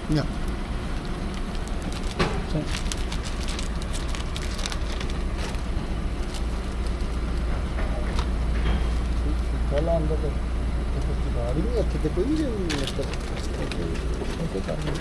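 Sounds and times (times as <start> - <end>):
car engine idling: 0.0 - 15.0
small crackles and clicks: 0.4 - 7.5, 12.7 - 15.0.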